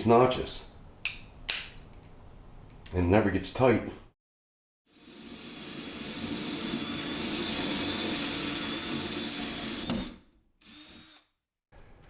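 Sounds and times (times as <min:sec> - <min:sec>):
power drill cutting wood: 0:05.1 - 0:11.2.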